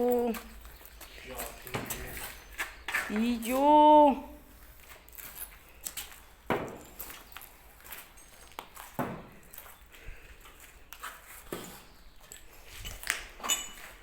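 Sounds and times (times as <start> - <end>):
footsteps on debris: 4.6 - 14.0.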